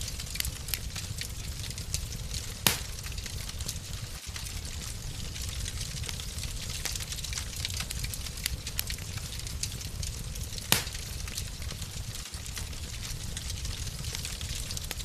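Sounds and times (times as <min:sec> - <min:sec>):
wood fire crackling: 0:00.0 - 0:15.0
loud fire pop: 0:02.6 - 0:03.2, 0:10.6 - 0:11.2.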